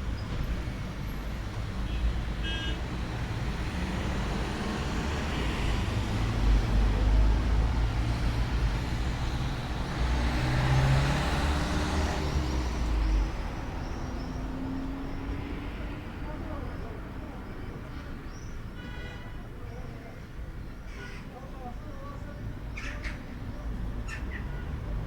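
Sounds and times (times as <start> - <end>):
vehicle engine rumble passing: 3.0 - 17.1.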